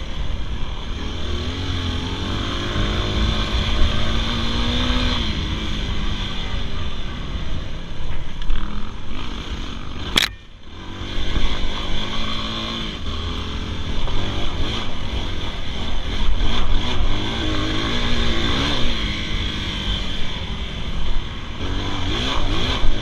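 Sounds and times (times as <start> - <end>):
dirt bike engine revving: 0.0 - 7.8, 8.5 - 23.0
steady rushing noise: 0.0 - 23.0
sharp click: 10.1 - 10.5.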